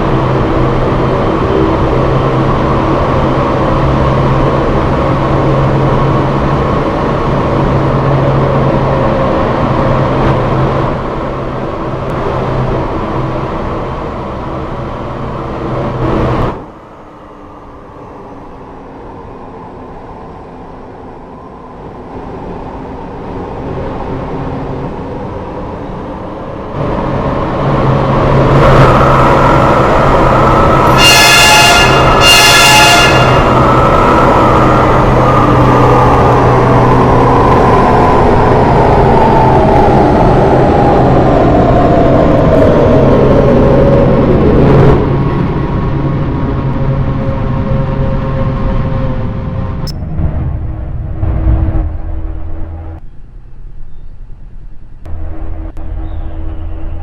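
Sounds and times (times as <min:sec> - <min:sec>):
train rumble and hum: 0:00.0 - 0:57.0
falling whine: 0:49.5 - 0:53.7.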